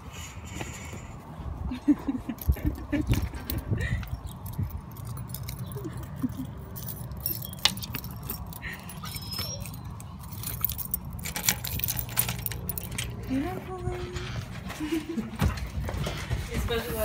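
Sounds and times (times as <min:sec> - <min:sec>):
keys jangling: 0:02.1 - 0:15.2.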